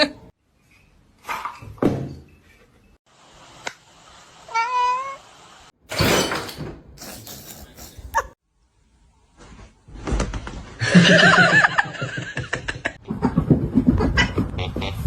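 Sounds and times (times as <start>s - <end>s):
cat meowing: 4.5s - 5.2s.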